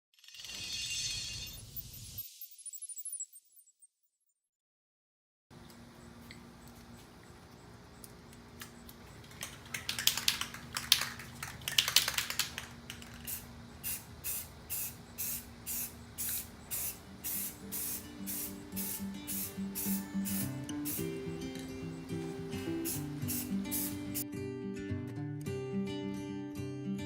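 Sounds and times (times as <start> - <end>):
spray paint can hissing: 9.7 - 21.2, 22.8 - 24.2.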